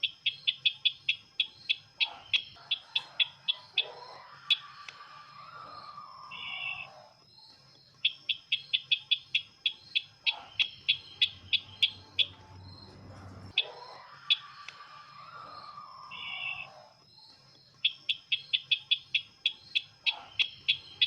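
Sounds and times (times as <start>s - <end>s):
bird call with high chips: 0.0s - 21.0s.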